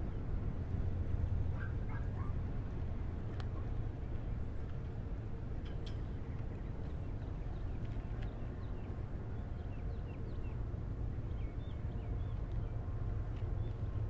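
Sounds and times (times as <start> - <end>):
low rumble with hum: 0.0 - 14.0.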